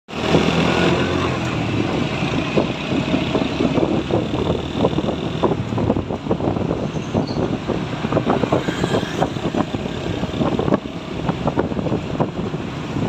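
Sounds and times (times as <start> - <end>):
truck engine running: 1.4 - 8.5.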